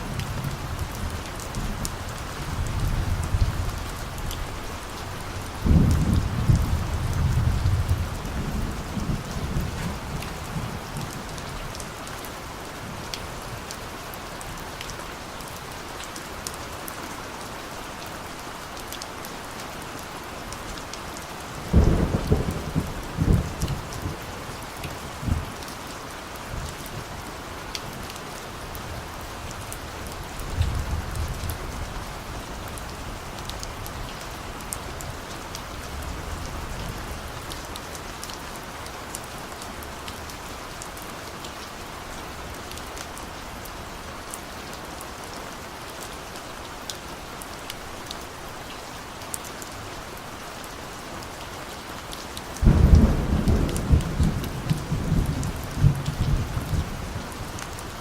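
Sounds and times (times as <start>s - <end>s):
steady rain: 0.0s - 58.0s
distant thunder rumbling: 21.7s - 24.2s, 52.6s - 57.5s.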